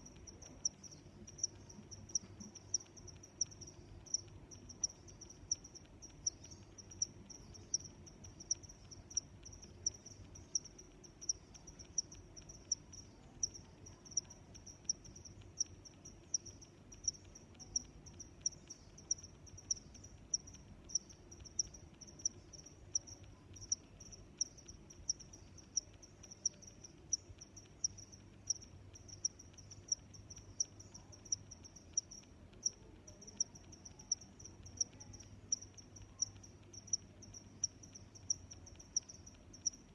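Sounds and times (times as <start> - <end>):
cricket chirping: 0.0 - 39.9
faint low background rumble: 0.0 - 39.9.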